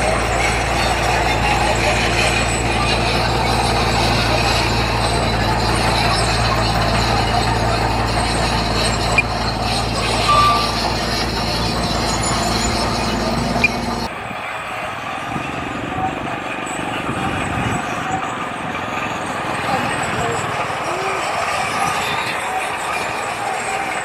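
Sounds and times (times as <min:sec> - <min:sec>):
diesel engine running: 0:00.0 - 0:24.0
brief beep: 0:10.2 - 0:11.2.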